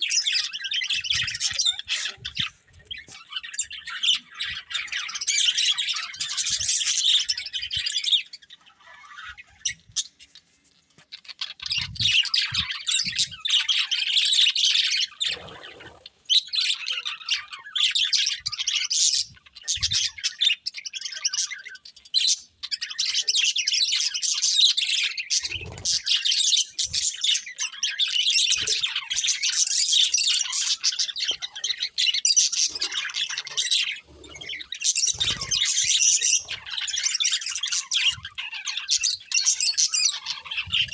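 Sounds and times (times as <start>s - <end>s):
budgerigars chattering: 0.0s - 10.5s, 11.2s - 40.9s.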